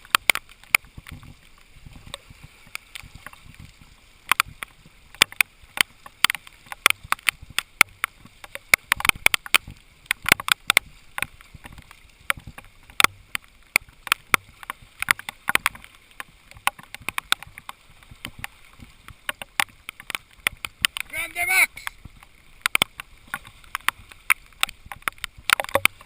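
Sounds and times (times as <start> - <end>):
sharp clicks and taps: 22.6 - 26.0.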